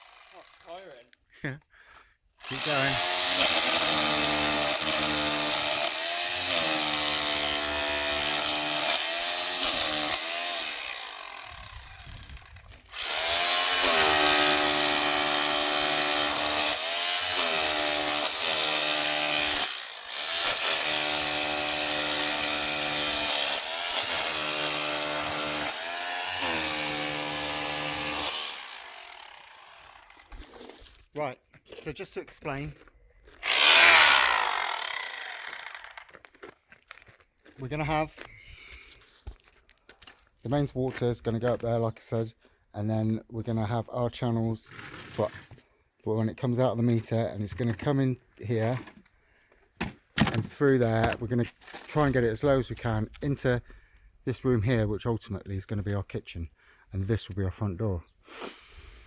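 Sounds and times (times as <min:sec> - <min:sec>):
power tool grinding masonry: 0:00.0 - 0:01.1, 0:02.4 - 0:31.0, 0:33.4 - 0:36.3.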